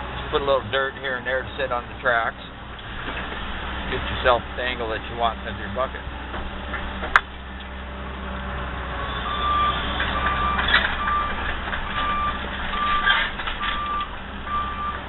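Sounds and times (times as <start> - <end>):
excavator diesel engine running: 0.0 - 15.0
backup alarm beeping: 9.1 - 15.0.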